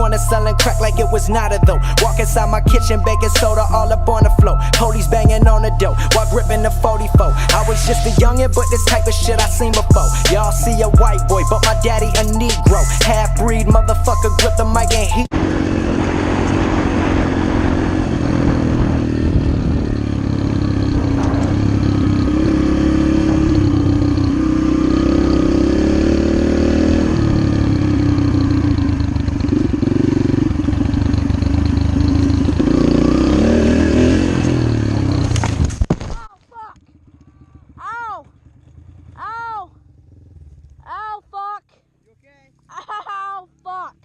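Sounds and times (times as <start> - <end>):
dirt bike engine running: 0.0 - 35.8, 36.8 - 43.0.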